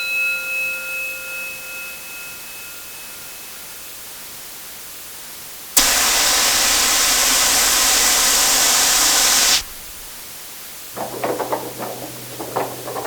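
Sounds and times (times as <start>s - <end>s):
loud steady hiss: 5.8s - 10.2s.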